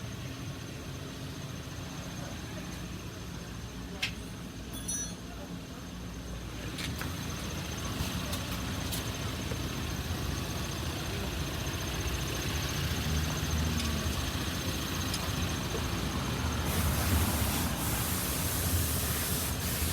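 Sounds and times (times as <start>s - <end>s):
low mechanical engine hum: 0.0s - 19.9s
loud spraying hiss: 16.0s - 19.9s.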